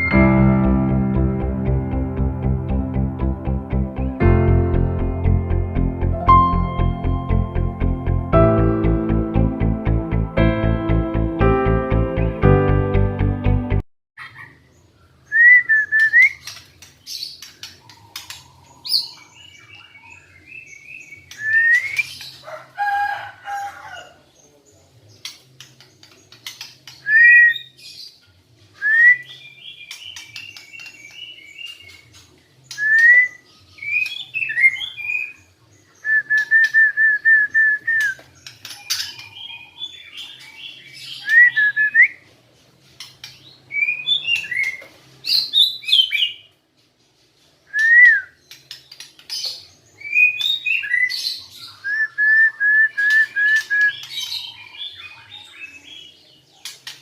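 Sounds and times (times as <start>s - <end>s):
bird singing whistled phrases: 21.3s - 22.1s, 27.0s - 27.8s, 28.8s - 29.6s, 32.7s - 35.4s, 41.2s - 42.2s, 47.7s - 48.4s, 51.7s - 54.4s.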